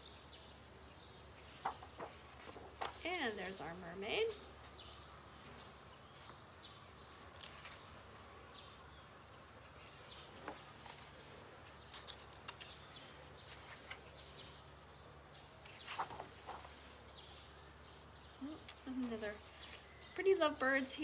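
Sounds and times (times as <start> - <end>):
book pages rustling: 1.3 - 5.0, 6.1 - 8.3, 9.7 - 14.8, 15.6 - 17.5, 19.0 - 20.9.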